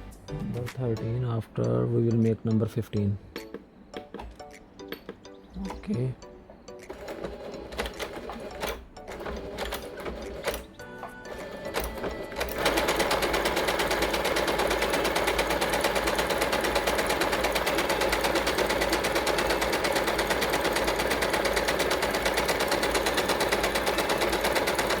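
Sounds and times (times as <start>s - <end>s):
sewing machine stitching fast: 6.9s - 10.7s, 11.3s - 25.0s
sewing machine clicks: 6.9s - 25.0s.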